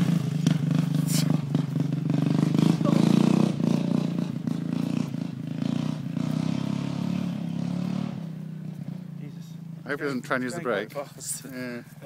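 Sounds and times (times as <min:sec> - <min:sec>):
lawn mower engine running: 0:00.0 - 0:09.2.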